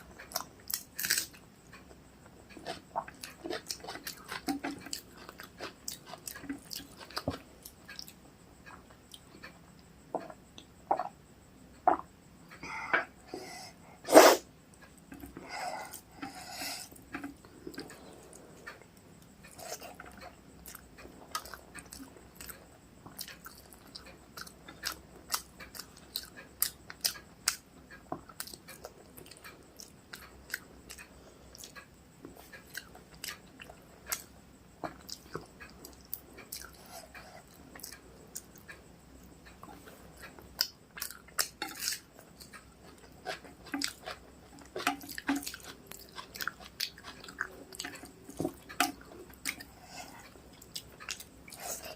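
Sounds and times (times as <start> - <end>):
wet chewing: 2.5 - 9.6, 39.4 - 51.9.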